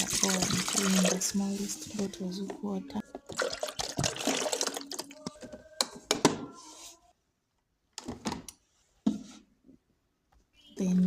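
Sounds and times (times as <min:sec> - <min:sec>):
water splashing into coffee maker: 0:00.0 - 0:01.3, 0:03.3 - 0:05.1.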